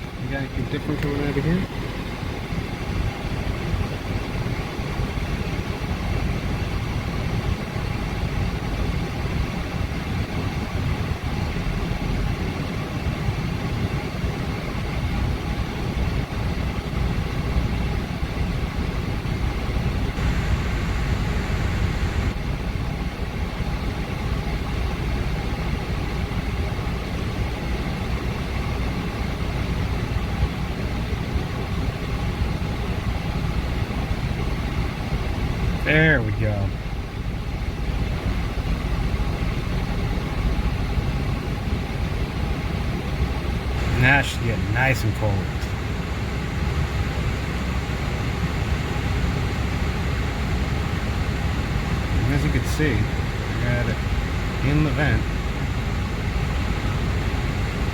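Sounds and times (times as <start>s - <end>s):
car engine idling: 19.7s - 22.6s, 34.0s - 57.9s.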